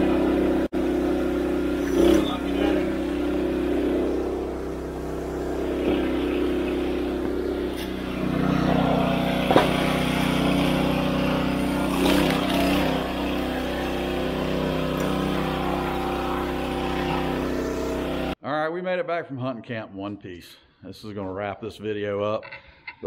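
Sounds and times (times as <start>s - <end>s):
engine running: 0.0s - 18.4s.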